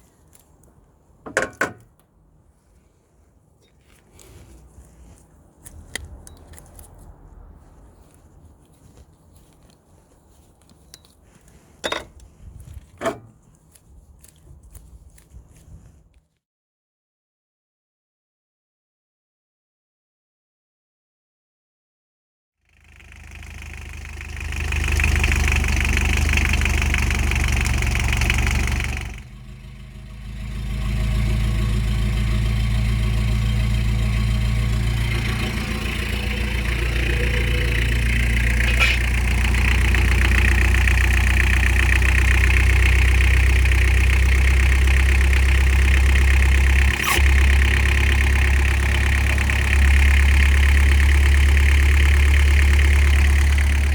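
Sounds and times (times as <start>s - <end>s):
diesel engine starting and idling: 4.0s - 9.0s, 22.7s - 53.9s.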